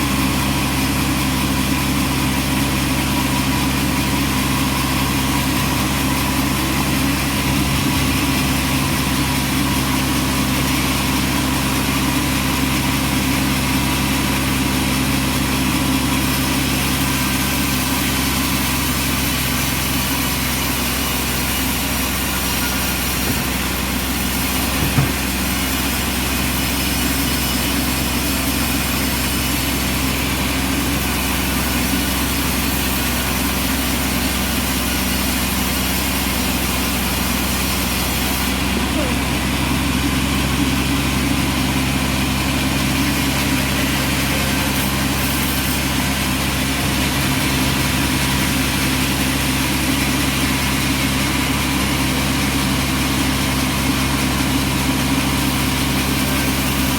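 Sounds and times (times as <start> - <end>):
sawmill engine running: 0.0 - 56.9
short knock: 24.8 - 25.3.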